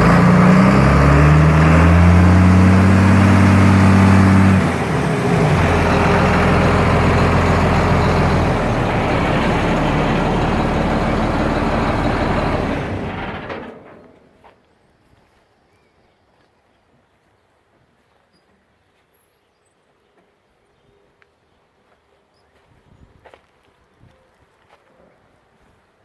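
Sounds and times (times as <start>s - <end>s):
tractor diesel engine running: 0.0s - 14.4s.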